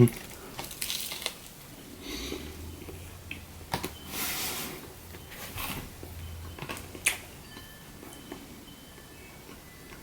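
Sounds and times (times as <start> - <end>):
person biting and chewing: 6.6 - 7.2.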